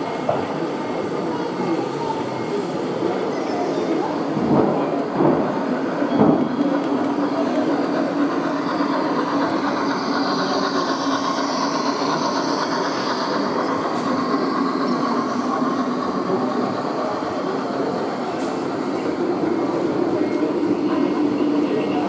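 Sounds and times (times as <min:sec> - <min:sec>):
train rumble: 0:00.0 - 0:22.0
train knocks: 0:04.2 - 0:21.8.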